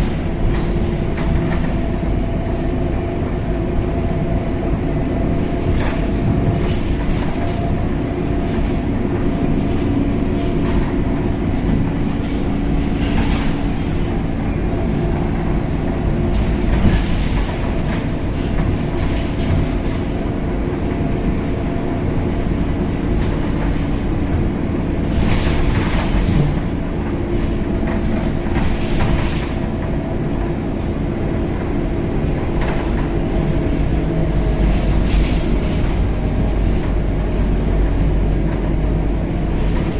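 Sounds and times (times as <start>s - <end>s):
bus diesel engine drone: 0.0s - 39.9s
road rumble: 0.0s - 39.9s
bodywork rattles and knocks: 5.5s - 20.9s, 22.9s - 30.6s, 32.4s - 37.6s.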